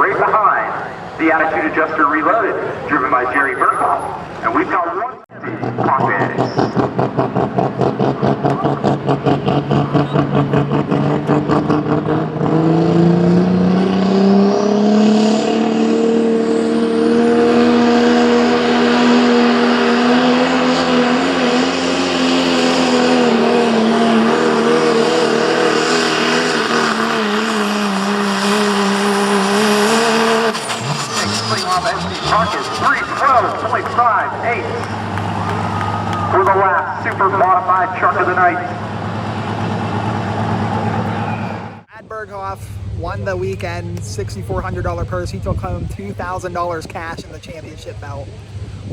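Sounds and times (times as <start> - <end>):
pulling truck engine revving: 0.0 - 47.3.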